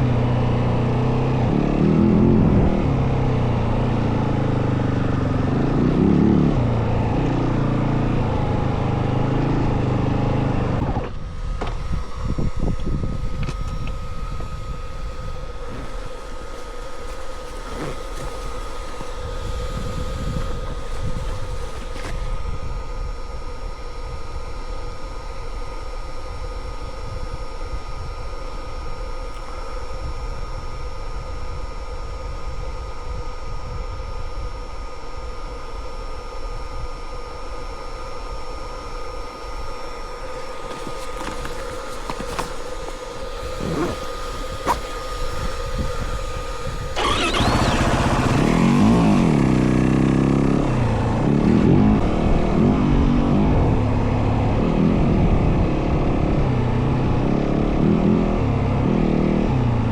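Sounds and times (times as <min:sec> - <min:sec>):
dirt bike engine: 0:00.0 - 0:22.6, 0:39.3 - 0:55.6.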